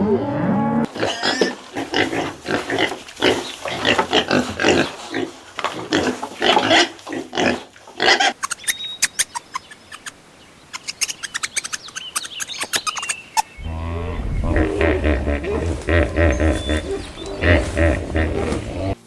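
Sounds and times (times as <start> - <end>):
high chirps and clicks: 8.4 - 18.4
deep drawn-out animal call: 13.6 - 19.0.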